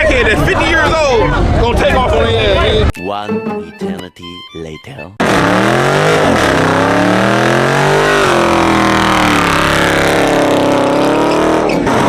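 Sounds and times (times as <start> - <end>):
car engine revving loudly: 5.2 - 12.0.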